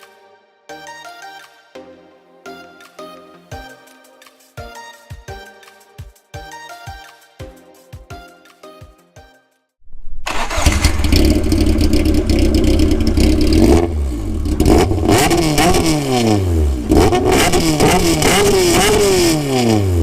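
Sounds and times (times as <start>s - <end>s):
car engine starting and idling: 10.3s - 20.0s
engine revving: 10.3s - 20.0s.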